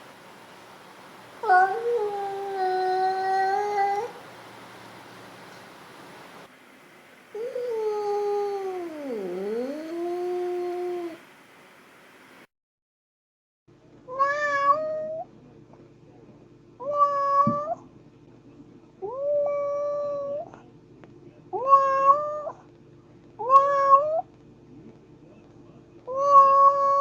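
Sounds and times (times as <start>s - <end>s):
faint steady hum: 0.0s - 12.5s
cat meowing: 1.4s - 4.2s, 14.1s - 15.2s, 16.8s - 17.8s, 21.6s - 22.6s, 23.4s - 24.2s, 26.1s - 27.0s.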